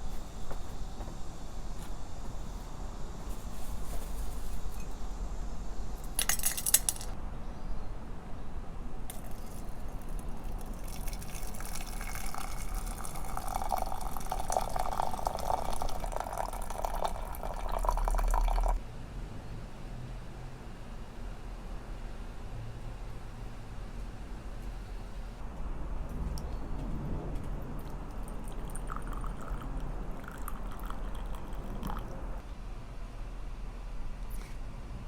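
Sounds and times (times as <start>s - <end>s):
liquid pouring into a glass: 9.1s - 18.8s, 27.8s - 32.4s.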